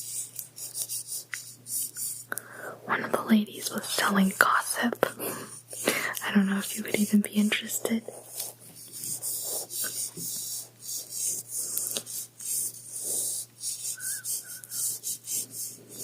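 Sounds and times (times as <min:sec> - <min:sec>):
faint steady hum: 0:00.0 - 0:16.0
soft rubbing strokes: 0:05.5 - 0:16.0.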